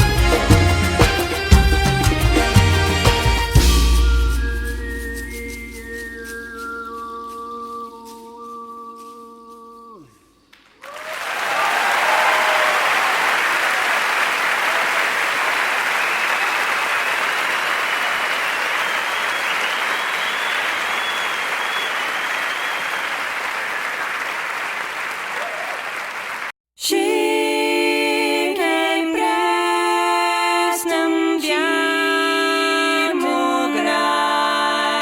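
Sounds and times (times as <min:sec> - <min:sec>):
crowd applause: 0:10.8 - 0:26.5.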